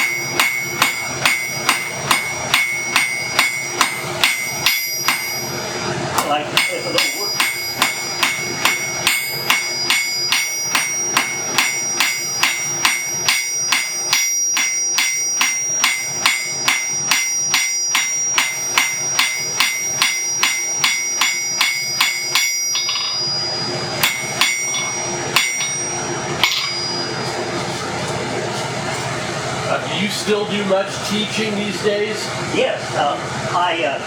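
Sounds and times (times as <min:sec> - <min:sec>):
hammer ringing on anvil: 0:00.0 - 0:05.6, 0:06.2 - 0:27.5.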